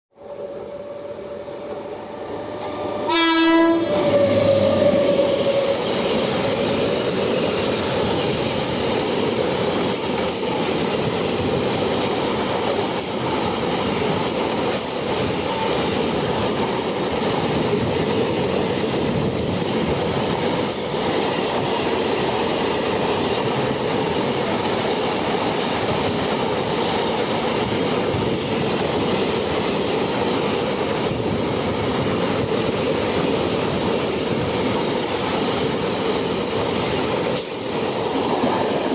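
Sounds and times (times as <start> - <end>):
train horn blast: 2.6 - 5.9.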